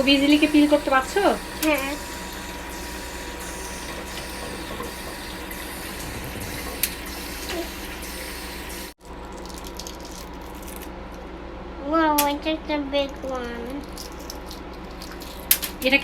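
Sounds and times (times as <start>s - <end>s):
tap running into sink: 0.0s - 8.9s.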